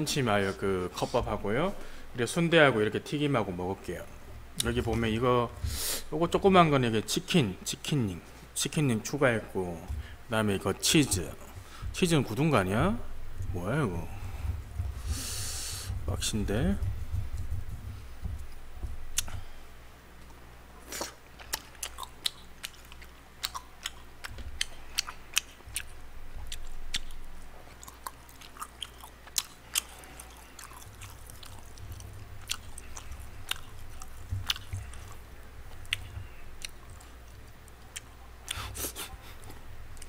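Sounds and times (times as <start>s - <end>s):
chewing mouth clicks: 21.0s - 40.0s.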